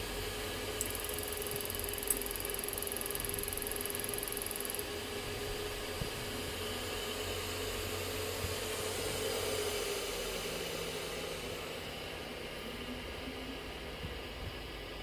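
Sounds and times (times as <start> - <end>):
boiler fan blowing: 0.0 - 15.0
hum: 0.8 - 5.9.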